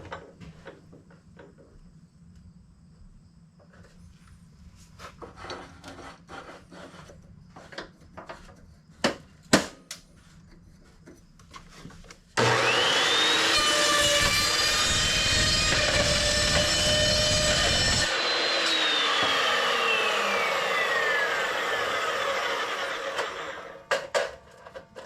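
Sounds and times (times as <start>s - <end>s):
electric power saw whining: 12.4s - 24.4s.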